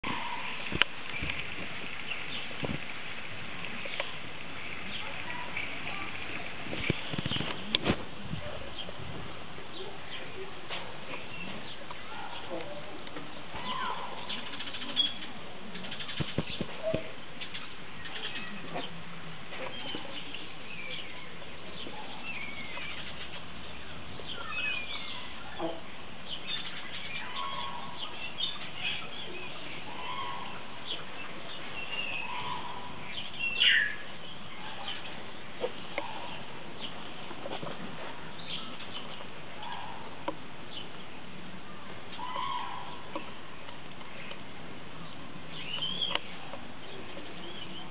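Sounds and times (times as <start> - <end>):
birds chirping and whistling: 19.6 - 25.7, 26.3 - 35.2, 45.5 - 47.9.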